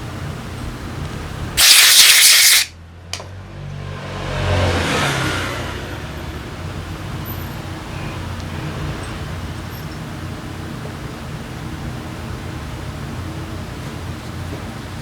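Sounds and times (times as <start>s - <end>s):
motorcycle engine revving and idling: 3.1s - 9.5s.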